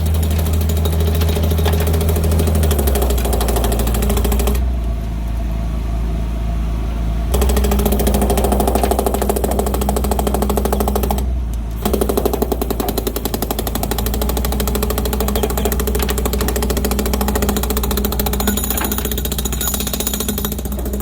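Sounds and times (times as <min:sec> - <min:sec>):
pneumatic chipping hammer on concrete: 0:00.0 - 0:04.7, 0:07.3 - 0:21.0
engine drone: 0:00.0 - 0:21.0.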